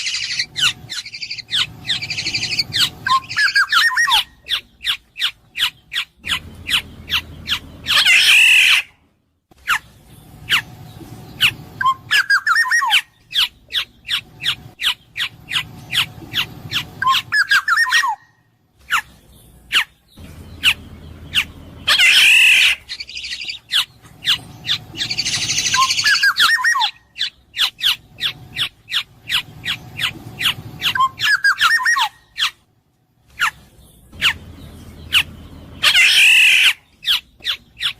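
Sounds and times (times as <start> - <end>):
bird whistled phrases: 0.0 - 8.9, 11.4 - 18.3, 20.6 - 32.6, 35.1 - 37.9
harsh rasping bird calls: 0.0 - 37.9.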